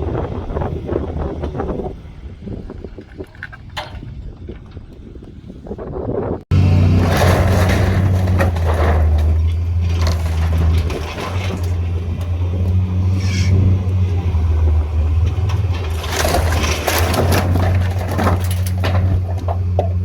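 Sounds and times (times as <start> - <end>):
heavy machine engine running: 6.5 - 20.0
timbers crunching and cracking: 6.5 - 20.0.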